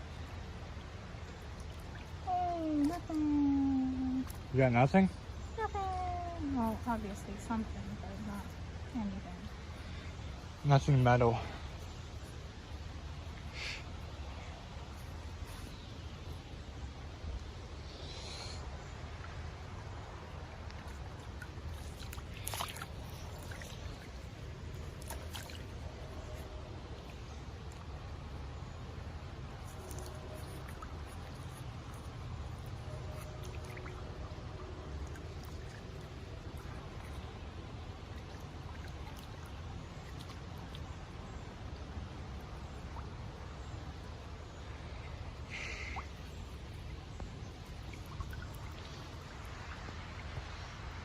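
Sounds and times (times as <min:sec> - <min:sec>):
creek water trickling: 0:00.0 - 0:51.0
short splashes: 0:20.7 - 0:26.3.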